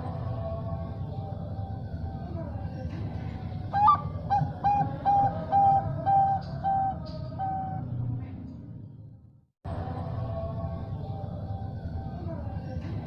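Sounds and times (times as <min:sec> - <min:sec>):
dove cooing: 0:03.7 - 0:07.8.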